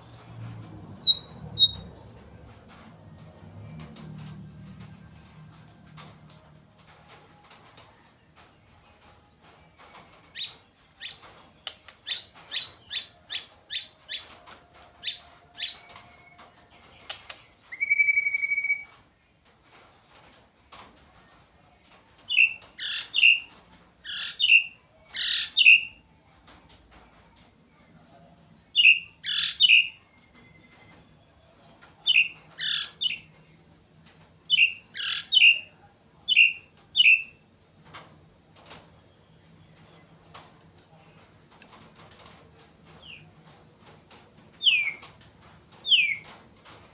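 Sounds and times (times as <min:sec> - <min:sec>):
songbird singing: 0:01.0 - 0:02.8, 0:03.6 - 0:06.2, 0:07.1 - 0:07.8, 0:28.7 - 0:30.0, 0:32.0 - 0:33.4, 0:34.5 - 0:37.4, 0:44.6 - 0:45.1, 0:45.8 - 0:46.4.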